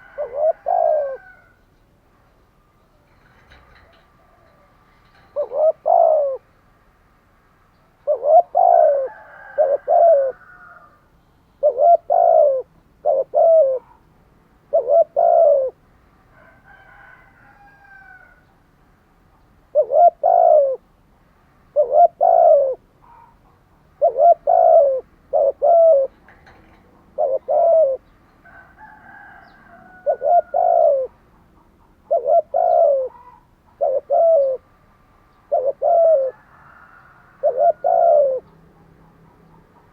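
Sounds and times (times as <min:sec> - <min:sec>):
dove cooing: 0:00.0 - 0:01.6, 0:02.7 - 0:06.5, 0:08.0 - 0:11.0, 0:11.6 - 0:15.8, 0:19.7 - 0:20.9, 0:21.7 - 0:39.9
small birds chirping: 0:29.4 - 0:36.4.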